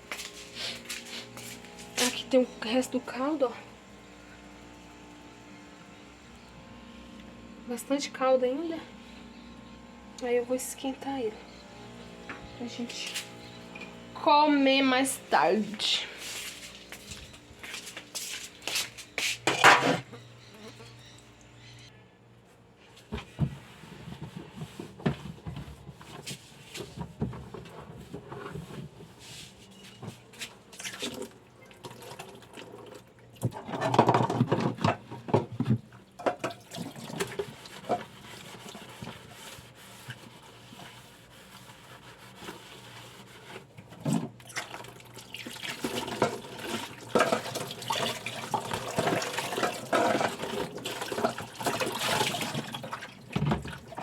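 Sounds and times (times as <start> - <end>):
tap water running into sink: 44.5 - 54.0.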